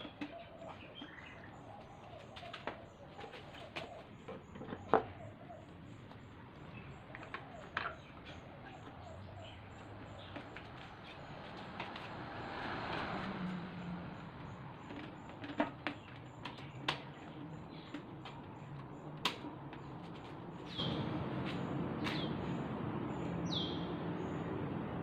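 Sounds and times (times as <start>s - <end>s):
bird cooing: 0.0s - 10.4s.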